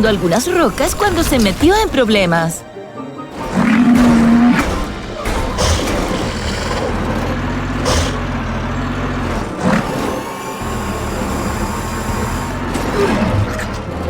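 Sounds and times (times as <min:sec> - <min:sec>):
cartoon motor hum: 0:03.4 - 0:14.0.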